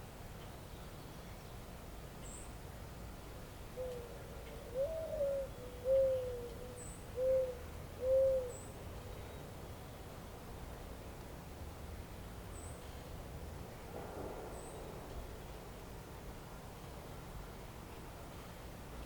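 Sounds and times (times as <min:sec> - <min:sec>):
faint outdoor background: 0:00.0 - 0:19.0
bird hooting: 0:03.8 - 0:08.6.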